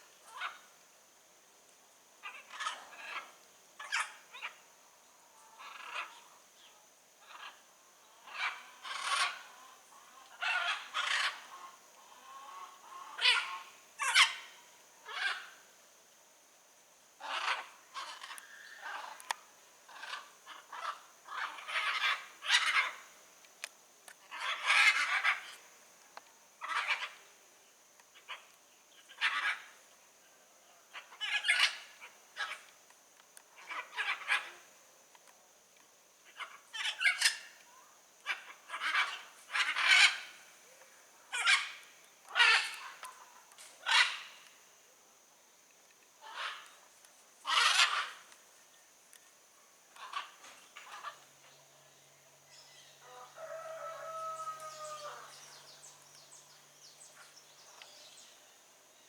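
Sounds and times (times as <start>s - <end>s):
macaws squawking: 38.3s - 40.3s, 41.4s - 43.1s, 47.4s - 48.3s.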